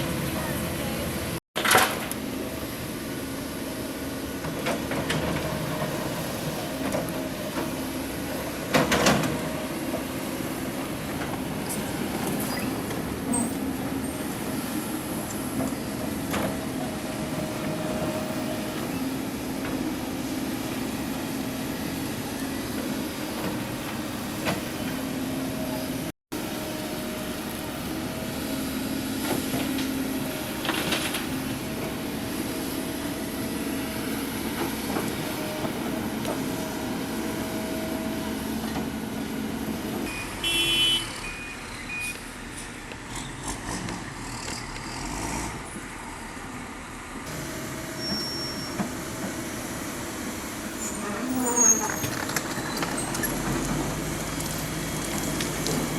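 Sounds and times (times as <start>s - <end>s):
heavy diesel engine running: 0.0s - 1.4s, 41.6s - 55.9s.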